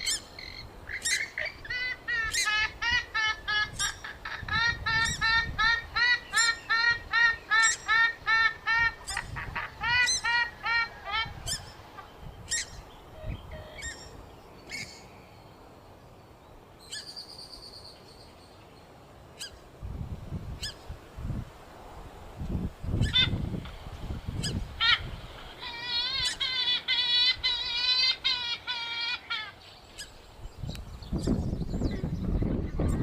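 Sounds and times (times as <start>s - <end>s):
gallinule honk-like calls: 24.4s - 29.6s.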